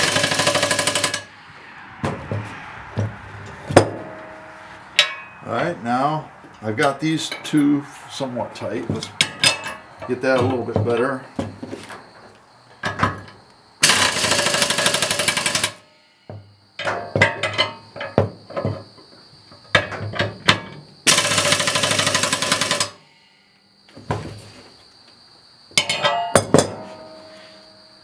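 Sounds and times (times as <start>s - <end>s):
rapid mechanical rattling: 0.0s - 1.3s, 13.8s - 15.8s
metal clinks and tool knocks: 2.0s - 5.4s, 8.8s - 12.1s, 16.3s - 18.9s, 25.8s - 27.4s
insect buzz: 11.2s - 25.8s, 26.8s - 28.0s.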